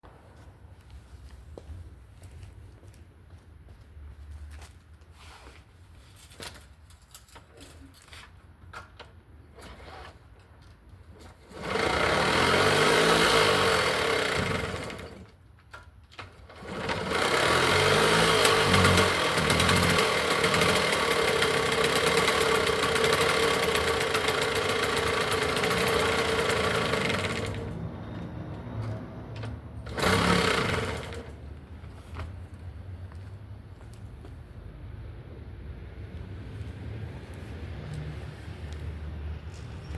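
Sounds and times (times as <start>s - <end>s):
moped engine starting and revving: 11.4s - 15.4s, 16.3s - 28.3s, 29.7s - 31.6s.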